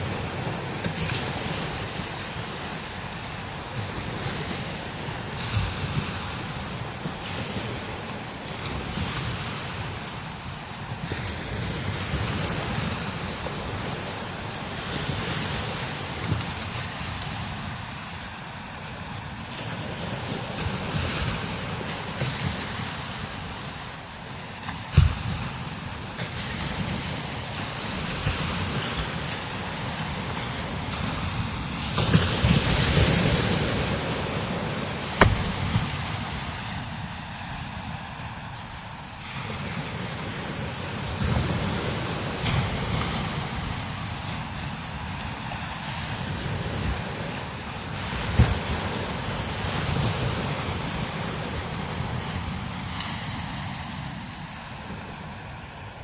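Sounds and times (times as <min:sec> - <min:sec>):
hiss of wind-blown sand: 0:00.0 - 0:56.0
wind rumbling on microphone: 0:00.0 - 0:56.0
sharp thump: 0:35.2 - 0:35.8.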